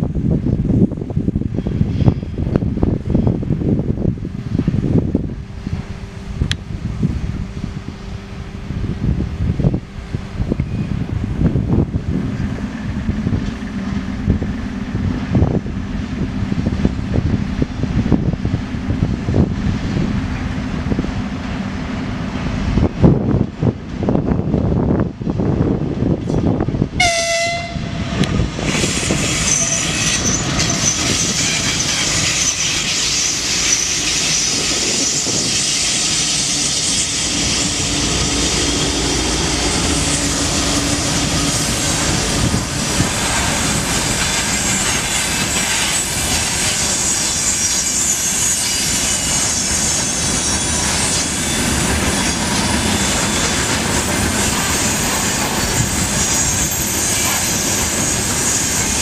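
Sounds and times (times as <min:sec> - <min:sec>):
freight train wheels rushing on rails: 0:00.0 - 0:59.0
high wheel squeals: 0:28.2 - 0:59.0.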